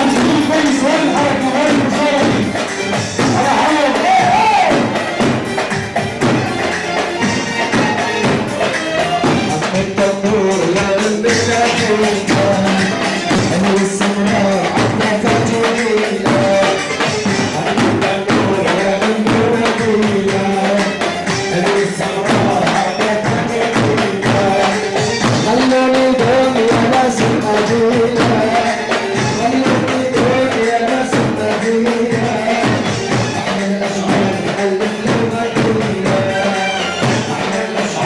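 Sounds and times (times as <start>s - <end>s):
fast percussion with tambourine: 0.0s - 38.0s
held instrumental melody: 0.0s - 38.0s.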